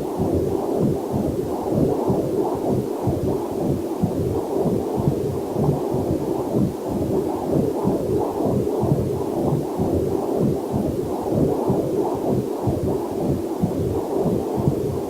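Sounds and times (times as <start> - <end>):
fetal doppler heartbeat whooshing: 0.0 - 15.0.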